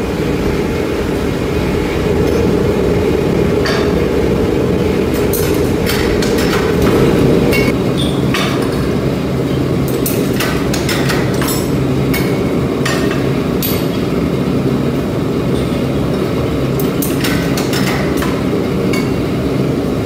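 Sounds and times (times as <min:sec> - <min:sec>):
machinery rumbling: 0:00.0 - 0:20.0.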